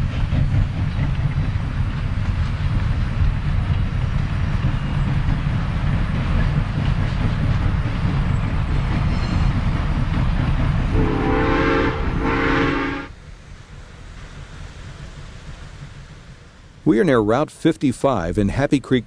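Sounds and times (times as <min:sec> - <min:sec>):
steam locomotive rumbling: 0:00.0 - 0:19.0
steam whistle blasts: 0:10.9 - 0:13.1.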